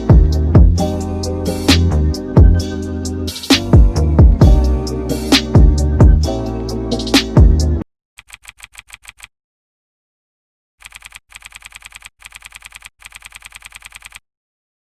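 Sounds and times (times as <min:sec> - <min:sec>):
computer keyboard typing: 0:08.2 - 0:09.3, 0:10.8 - 0:14.2.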